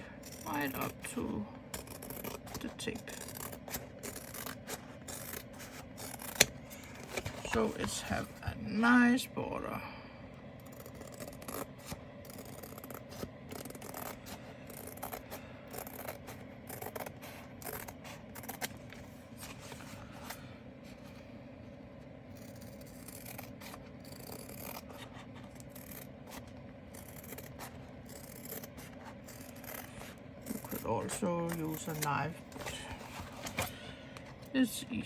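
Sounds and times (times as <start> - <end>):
scissors snipping tape: 1.8 - 7.4, 10.7 - 18.8, 22.4 - 26.4.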